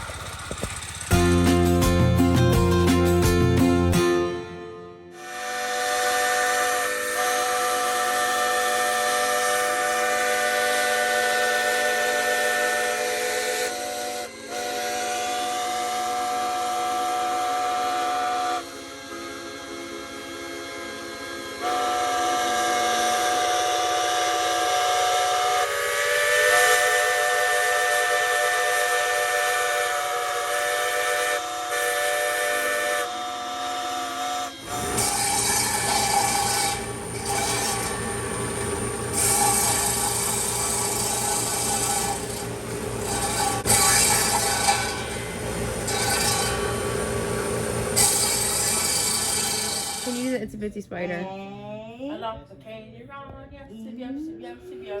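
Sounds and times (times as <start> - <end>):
steam whistle blowing: 5.2 - 18.8, 21.6 - 50.4.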